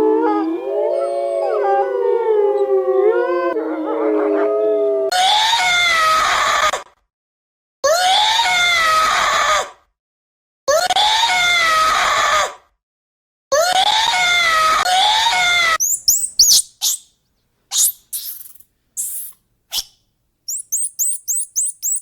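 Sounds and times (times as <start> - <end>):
chorus of howling: 0.0 - 5.2
harsh animal cries: 15.8 - 17.0, 17.7 - 19.9, 20.5 - 22.0.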